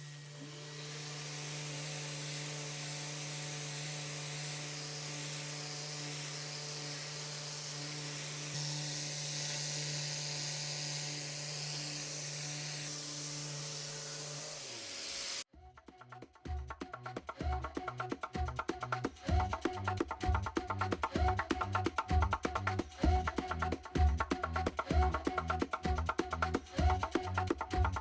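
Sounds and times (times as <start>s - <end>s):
electric motor humming: 0.0s - 15.5s.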